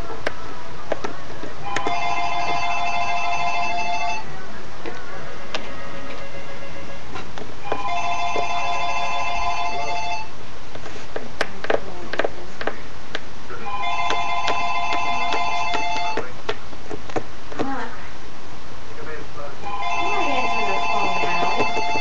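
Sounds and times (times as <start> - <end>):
telephone ringtone ringing: 1.7 - 4.2, 5.9 - 7.0, 7.7 - 10.3, 13.7 - 16.2, 19.7 - 22.0.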